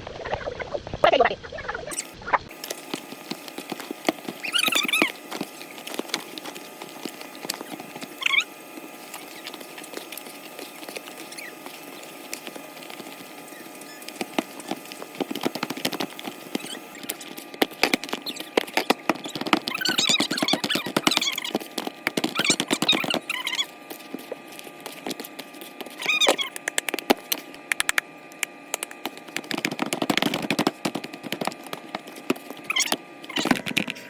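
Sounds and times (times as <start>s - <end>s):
dough tapping and patting by hand: 14.0s - 33.0s.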